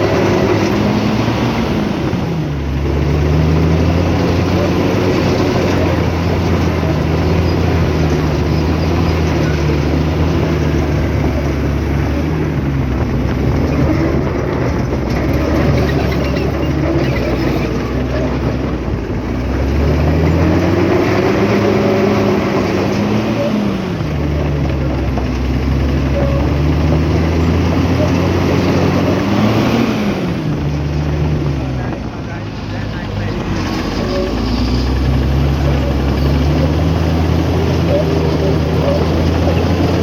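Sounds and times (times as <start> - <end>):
diesel engine running under load: 0.0 - 40.0.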